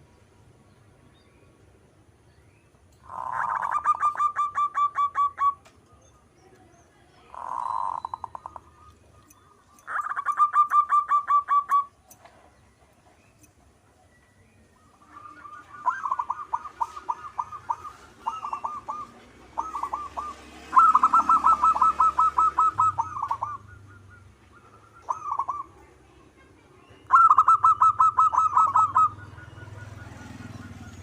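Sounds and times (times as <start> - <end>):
dove cooing: 3.0 - 5.7, 7.3 - 8.9, 9.8 - 12.0, 14.8 - 26.0, 27.1 - 31.0.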